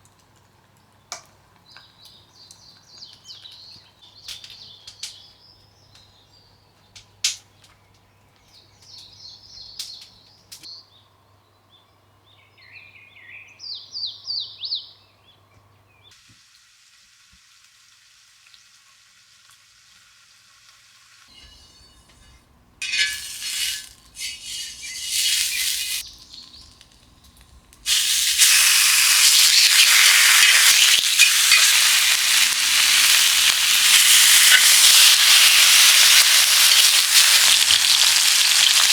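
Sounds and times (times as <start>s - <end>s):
small birds chirping: 0.8s - 16.1s, 24.1s - 26.9s, 27.8s - 38.9s
food sizzling in hot pan: 16.3s - 21.5s, 22.8s - 26.1s, 27.8s - 38.9s
faint hiss: 22.9s - 38.9s.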